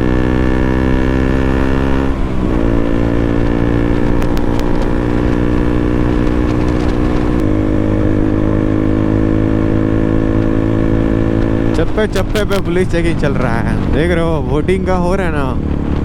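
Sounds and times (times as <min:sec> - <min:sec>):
motorcycle engine cruising: 0:00.0 - 0:16.0.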